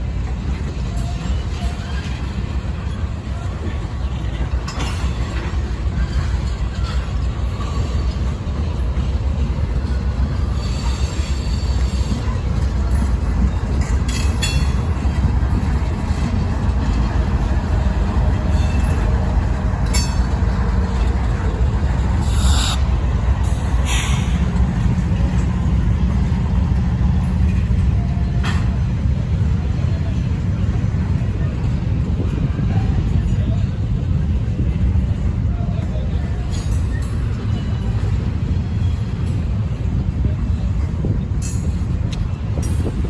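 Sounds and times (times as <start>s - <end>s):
train clanks: 0.0s - 43.0s
train wheels rumbling on rail: 0.0s - 43.0s
wheel squeals: 22.2s - 22.9s.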